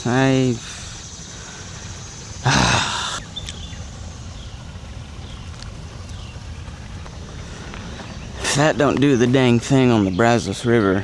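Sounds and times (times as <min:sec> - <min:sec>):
steady low background noise: 0:00.0 - 0:11.0
person grunting: 0:02.4 - 0:03.2.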